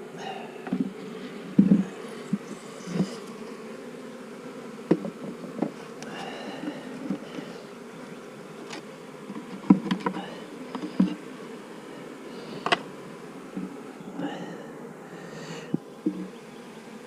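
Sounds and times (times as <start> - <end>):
bees buzzing: 0.0 - 17.0
clicks and knocks of hive parts: 0.6 - 3.6, 4.8 - 11.3, 12.5 - 13.8, 15.7 - 16.4.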